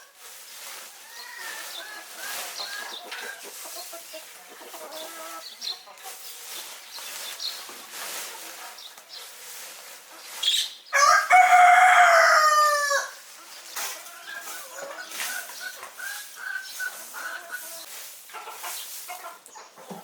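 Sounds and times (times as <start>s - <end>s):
chickens clucking: 0.0s - 20.0s
rooster crowing: 11.0s - 13.2s.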